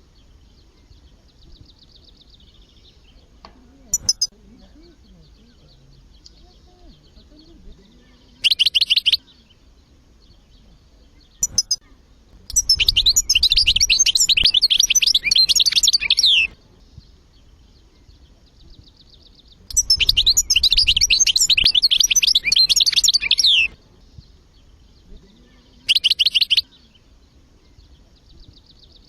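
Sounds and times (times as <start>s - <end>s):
finch twittering and trills: 0.0s - 29.0s
brief bird chirp: 19.7s - 23.7s.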